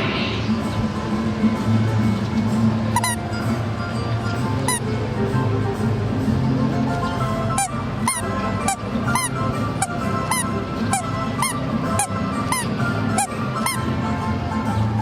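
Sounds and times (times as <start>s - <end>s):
low music accompaniment: 0.0s - 15.0s
squeaky honking notes: 2.9s - 5.4s, 6.8s - 15.0s.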